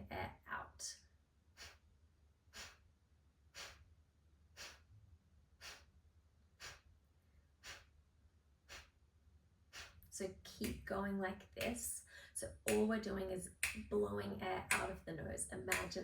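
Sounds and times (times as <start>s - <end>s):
woman exhaling sharply through nose: 1.6s - 1.8s, 2.6s - 2.8s, 3.6s - 3.8s, 4.6s - 4.8s, 5.6s - 5.9s.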